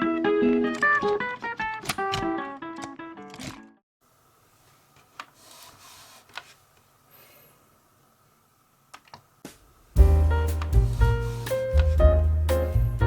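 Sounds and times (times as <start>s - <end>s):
background music: 10.0s - 13.0s.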